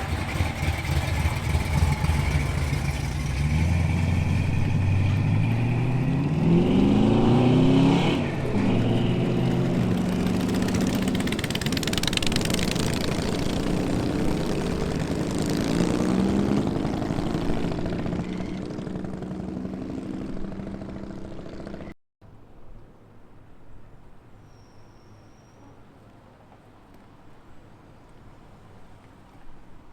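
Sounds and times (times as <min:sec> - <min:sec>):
car engine revving and pulling away: 0:00.0 - 0:21.9.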